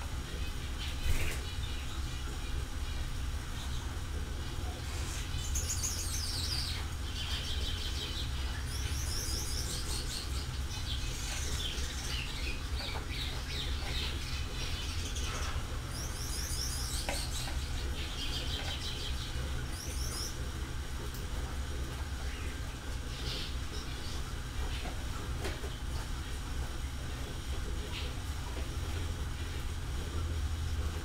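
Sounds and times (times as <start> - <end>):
steady low hum: 0.0 - 31.0
small birds chirping: 0.2 - 30.3.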